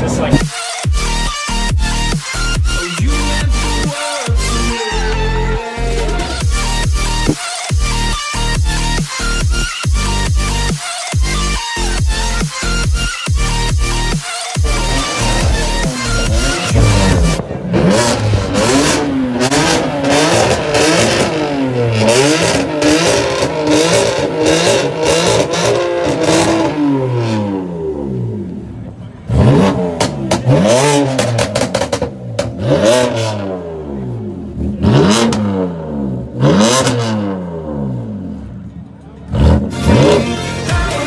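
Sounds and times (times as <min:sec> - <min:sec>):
car engine revving: 0:00.0 - 0:41.0
exhaust pops and crackles: 0:07.2 - 0:07.5, 0:14.6 - 0:26.7, 0:28.5 - 0:33.2.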